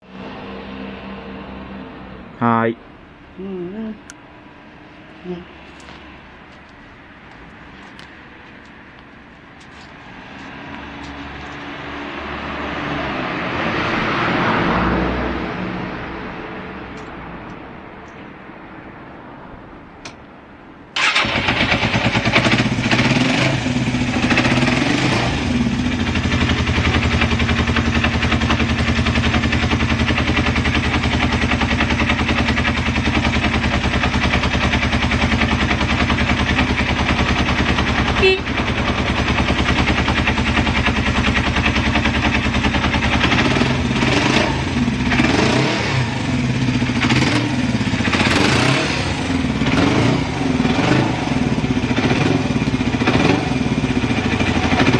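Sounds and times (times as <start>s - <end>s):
motorcycle engine idling: 21.0s - 24.7s, 25.3s - 45.2s, 51.4s - 54.9s.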